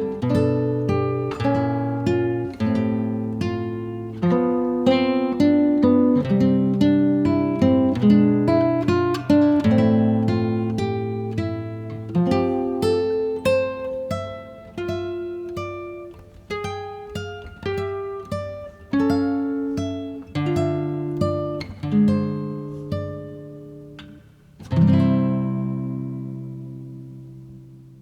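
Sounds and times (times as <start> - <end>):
acoustic guitar melody: 0.0 - 28.0.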